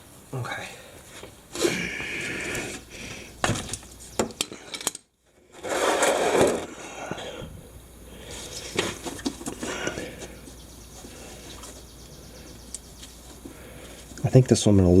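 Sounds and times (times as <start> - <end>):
metal parts and tools clinking: 3.5 - 6.7
rustling scrape: 5.5 - 6.8.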